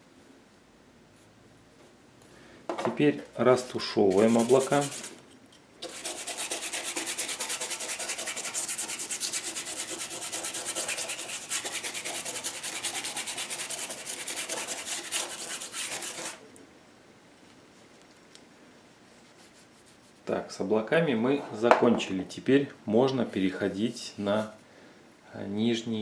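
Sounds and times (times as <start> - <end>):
paintbrush scrubbing: 3.6 - 5.2, 5.8 - 16.4, 19.2 - 20.3.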